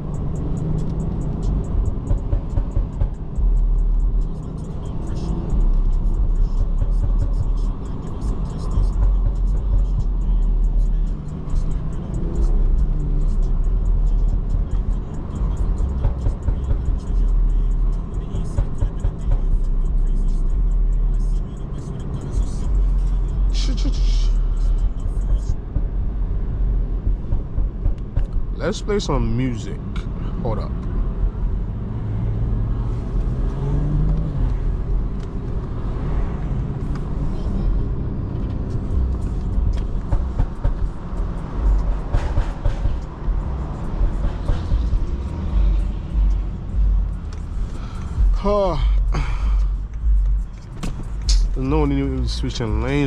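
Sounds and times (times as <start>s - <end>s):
car road and engine rumble: 0.0s - 53.0s.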